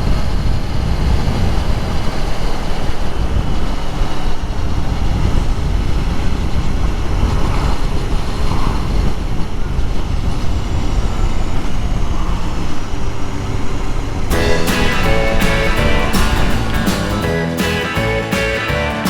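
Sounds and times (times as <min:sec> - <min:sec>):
wind on microphone: 0:00.0 - 0:16.9
motorcycle engine running: 0:14.3 - 0:19.0
plucked string music: 0:14.3 - 0:19.0.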